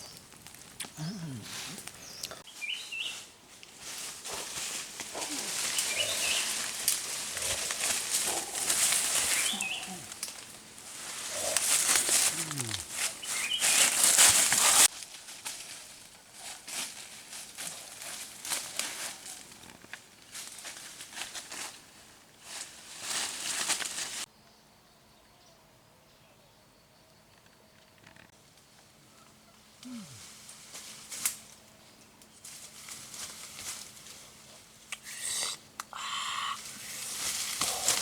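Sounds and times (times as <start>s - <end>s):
rustling and crackling: 0.0s - 24.3s, 32.2s - 34.7s, 36.6s - 38.0s
gliding animal or bird calls: 35.9s - 36.7s.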